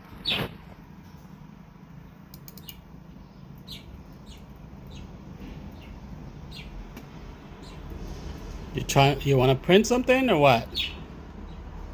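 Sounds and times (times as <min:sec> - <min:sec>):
cockatiel chirping: 0:00.2 - 0:00.5
quick clicks: 0:02.3 - 0:02.8.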